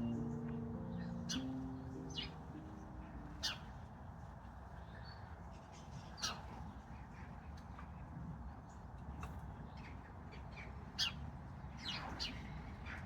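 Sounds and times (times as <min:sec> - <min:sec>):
bird chirps: 0:00.0 - 0:03.7
birds calling: 0:00.0 - 0:03.7.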